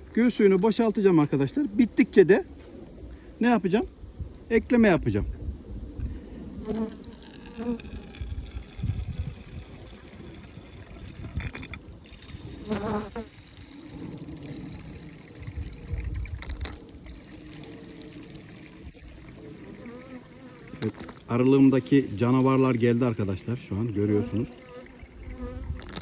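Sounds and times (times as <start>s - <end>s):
honeybees buzzing: 23.9s - 26.0s.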